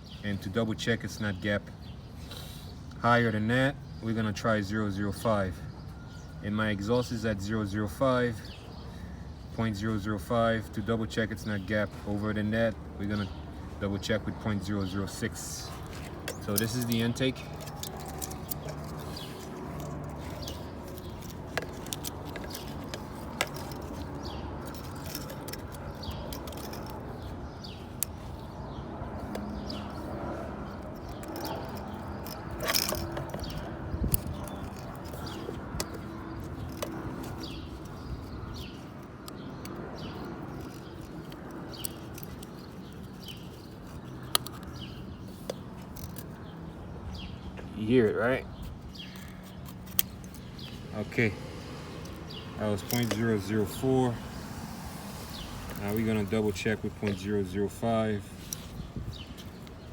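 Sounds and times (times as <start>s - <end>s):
feeler gauge clicking and scraping: 14.9s - 46.6s, 47.8s - 59.9s.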